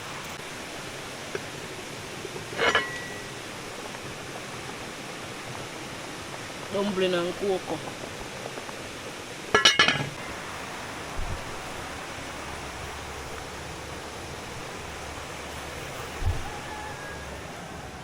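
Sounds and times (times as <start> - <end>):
river water rushing: 0.0 - 18.0
dull low thumps: 10.2 - 18.0.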